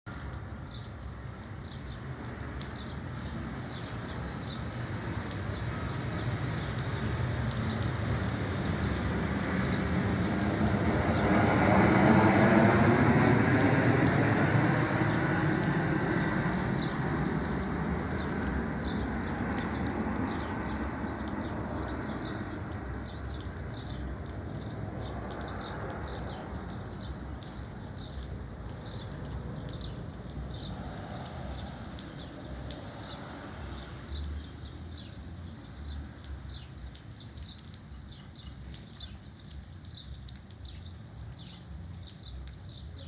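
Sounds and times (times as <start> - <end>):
airplane rumbling overhead: 2.1 - 34.1.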